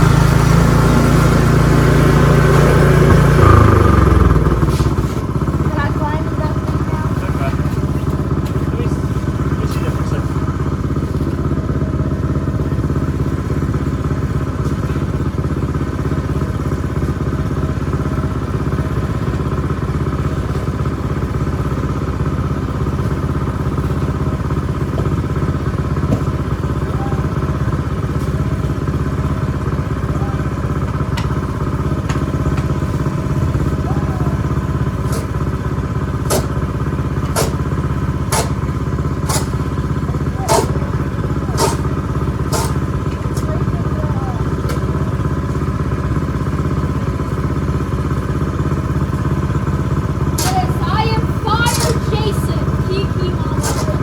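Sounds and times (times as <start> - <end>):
snowblower engine droning: 0.0 - 54.0.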